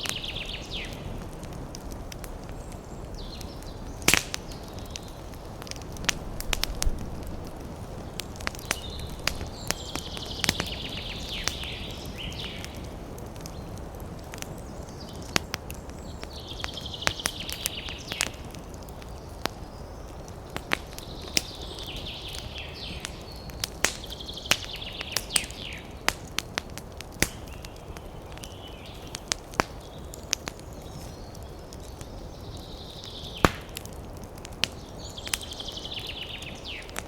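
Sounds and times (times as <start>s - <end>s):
birds chirping rapidly: 0.0s - 1.1s, 2.4s - 37.0s
wood fire crackling: 0.0s - 37.0s.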